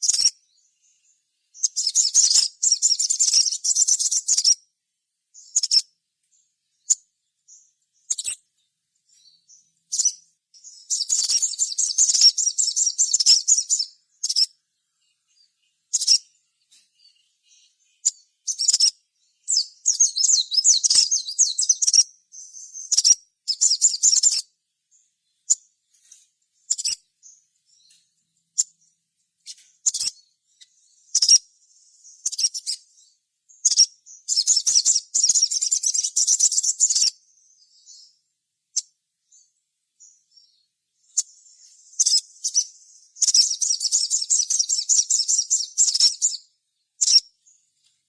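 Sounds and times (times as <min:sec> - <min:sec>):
bird chattering calls: 0:10.9 - 0:14.5, 0:29.5 - 0:30.2.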